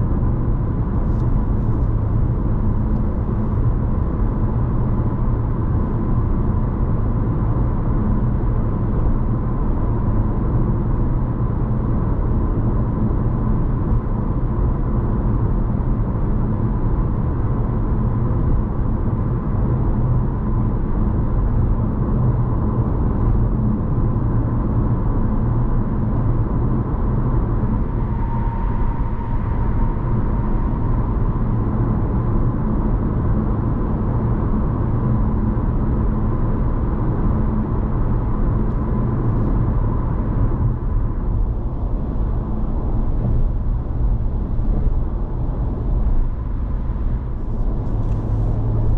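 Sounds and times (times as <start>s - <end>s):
car cabin road and engine drone: 0.0s - 48.9s
faint steady high tone: 27.8s - 31.9s.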